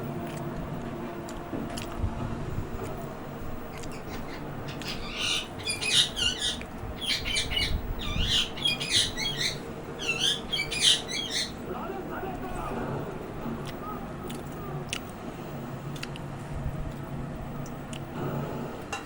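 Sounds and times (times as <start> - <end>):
parrot squawking: 3.7 - 11.7.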